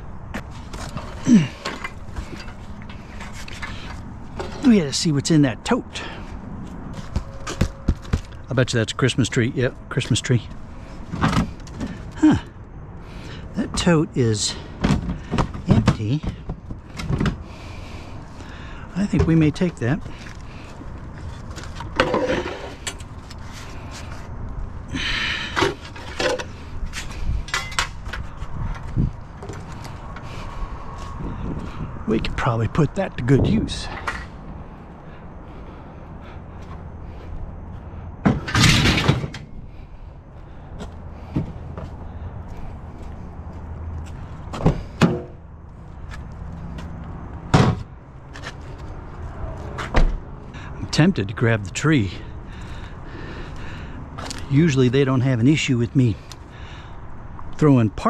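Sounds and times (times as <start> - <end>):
objects clunking: 0.3 - 4.7, 11.0 - 12.2, 14.6 - 17.6, 20.1 - 24.2, 25.1 - 30.4, 38.2 - 39.6
steady low rumble: 22.7 - 57.6.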